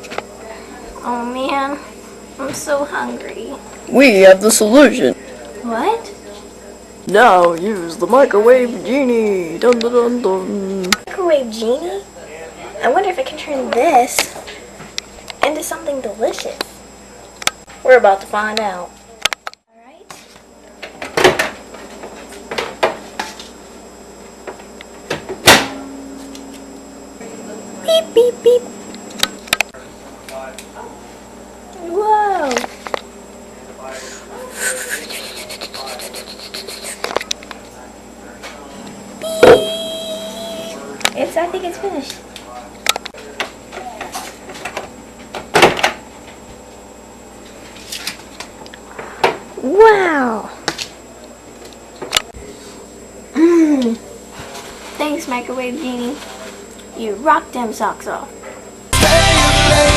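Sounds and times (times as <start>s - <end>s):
microwave door shutting: 25.1s - 25.9s.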